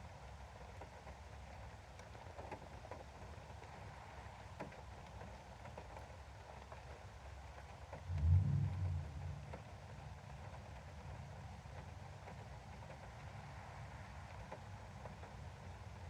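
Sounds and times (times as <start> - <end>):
rain pattering on window: 0.0 - 16.0
low steady rumble: 7.9 - 12.6.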